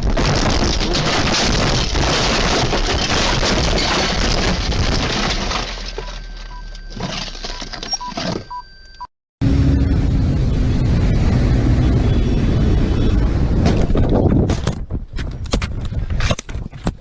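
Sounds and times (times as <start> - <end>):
car crash crunching: 0.0 - 8.5
short beeps: 6.0 - 9.1
vehicle road noise: 9.4 - 15.3.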